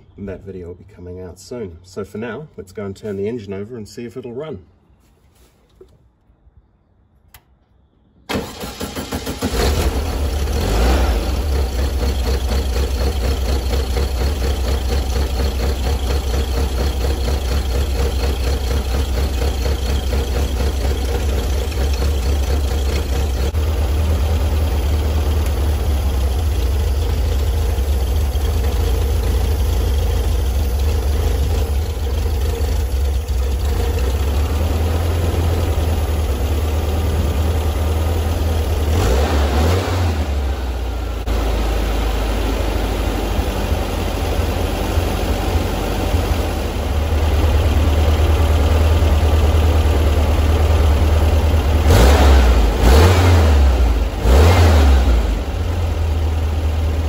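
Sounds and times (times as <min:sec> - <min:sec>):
engine cranking on starter: 0:08.3 - 0:36.2
car engine idling: 0:08.3 - 0:57.0.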